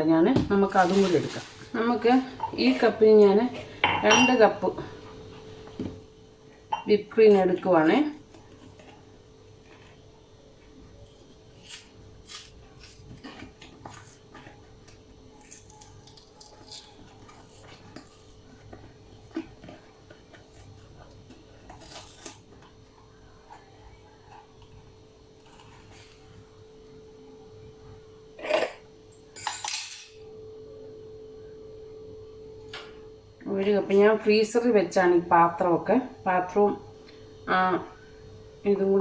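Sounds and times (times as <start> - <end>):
faint hum: 0.0 - 39.0
kitchen utensils clinking: 0.5 - 4.9, 28.4 - 30.2.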